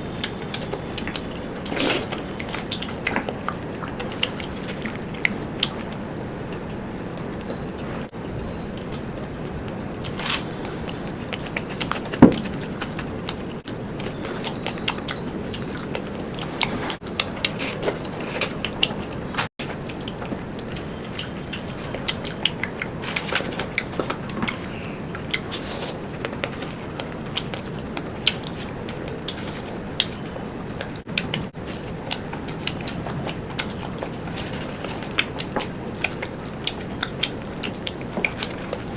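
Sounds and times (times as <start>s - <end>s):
chewing and biting food: 0.1s - 38.9s.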